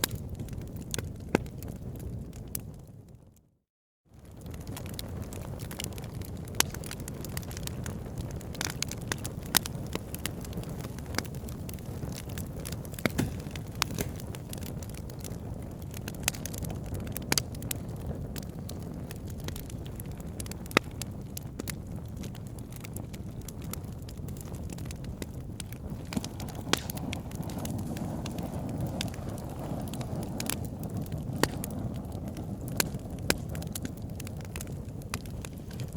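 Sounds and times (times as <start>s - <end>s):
burning wood popping: 0.0s - 2.8s, 4.2s - 35.9s
campfire crackling: 0.0s - 3.1s, 4.2s - 35.9s.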